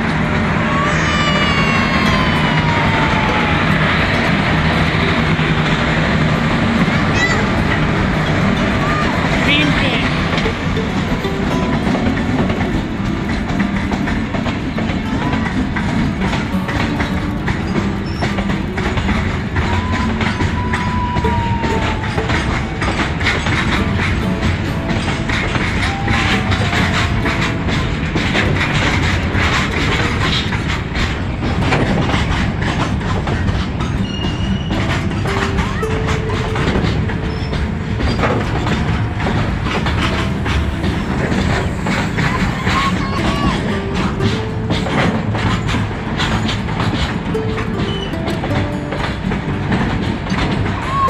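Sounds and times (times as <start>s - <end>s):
train wheels rumbling on rails: 0.0s - 51.0s
wheels clattering over track: 0.0s - 51.0s
thin squealing tone: 33.9s - 38.2s.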